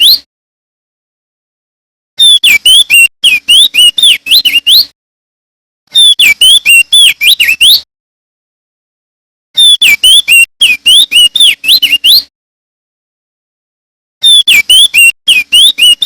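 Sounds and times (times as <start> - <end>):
bird singing whistled notes: 0.0 - 0.3, 2.2 - 4.9, 5.9 - 7.9, 9.6 - 12.3, 14.2 - 16.0.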